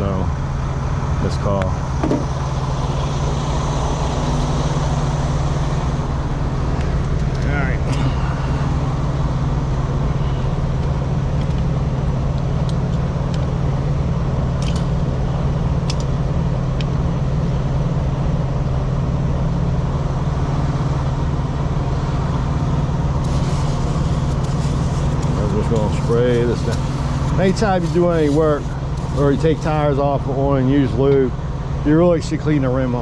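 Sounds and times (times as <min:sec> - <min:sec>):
truck engine idling: 0:01.8 - 0:13.2, 0:23.2 - 0:29.9.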